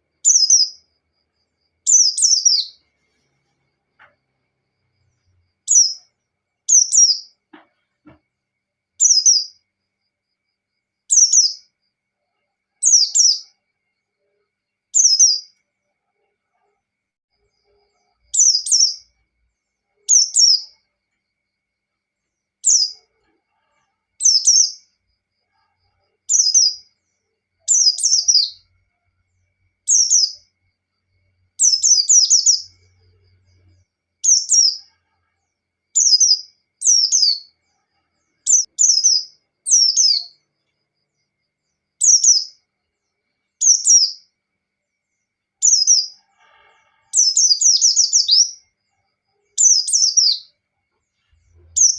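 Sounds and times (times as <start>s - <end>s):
bird singing rapid falling notes: 0.0s - 0.9s, 1.8s - 2.8s, 5.6s - 7.4s, 9.0s - 9.6s, 11.1s - 11.7s, 15.0s - 15.6s, 27.7s - 28.7s, 31.6s - 32.9s, 51.5s - 51.9s.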